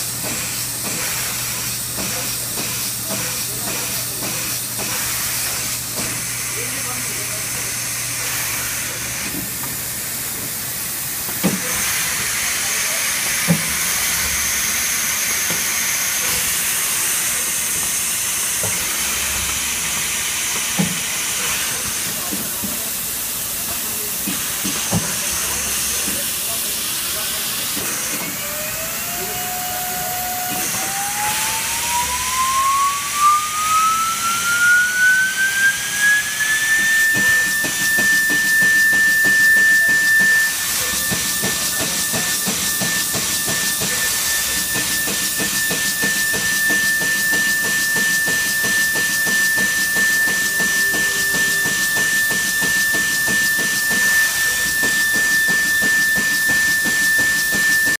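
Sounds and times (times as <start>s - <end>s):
drill spindle whine: 27.6s - 58.0s.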